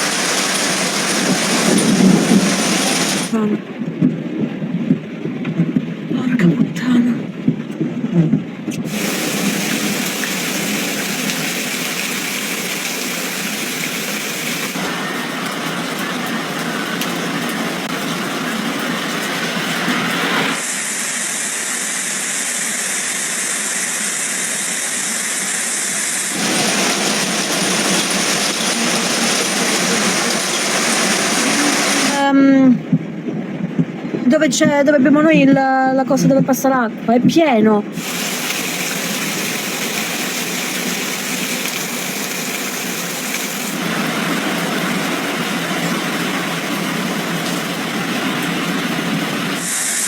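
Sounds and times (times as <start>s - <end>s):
running water: 0.0s - 3.5s, 8.8s - 21.2s, 24.8s - 32.6s, 37.9s - 50.0s
torrential rain: 0.0s - 34.6s, 37.9s - 50.0s.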